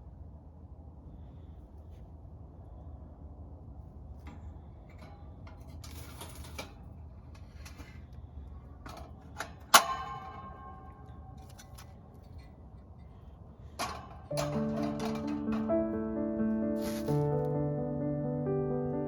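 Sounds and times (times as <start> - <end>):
low steady rumble: 0.0 - 19.0
clicks of objects handled: 11.3 - 13.0, 13.7 - 15.8.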